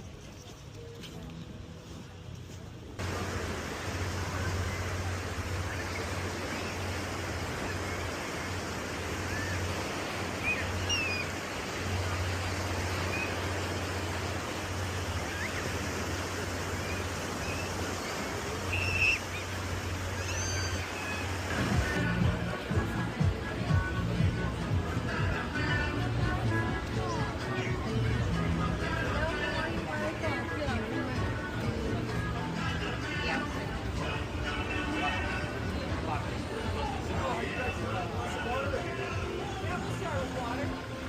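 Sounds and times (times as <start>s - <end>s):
ocean surf washing on beach: 1.2s - 41.0s
faint high chirps: 10.3s - 11.4s, 20.1s - 21.3s.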